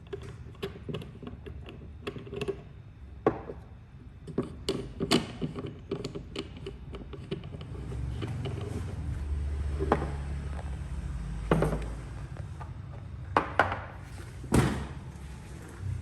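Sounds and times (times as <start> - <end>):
steady low hum: 0.0 - 16.0
hard objects knocking: 9.6 - 12.7, 13.3 - 14.0.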